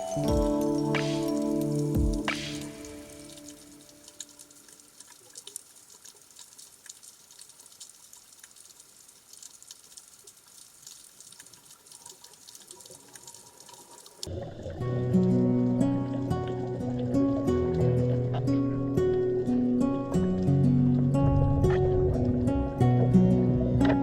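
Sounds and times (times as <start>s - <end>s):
background music: 0.0s - 4.2s.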